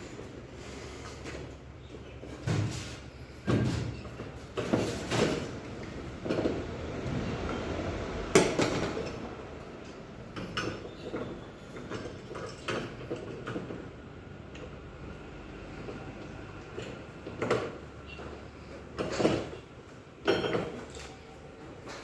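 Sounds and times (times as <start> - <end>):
hard objects knocking and clattering: 3.4 - 7.1, 10.3 - 14.8, 15.9 - 21.0.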